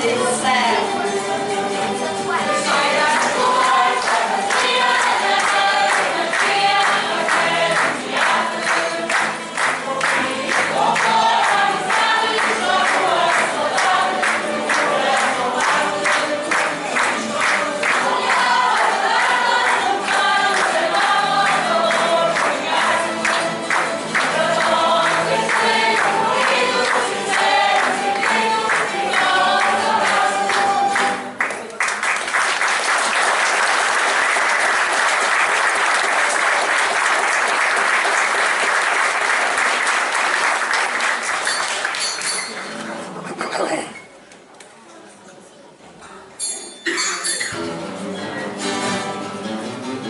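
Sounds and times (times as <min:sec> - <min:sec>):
group singing with instruments: 0:00.0 - 0:31.4
audience applauding: 0:03.0 - 0:43.4.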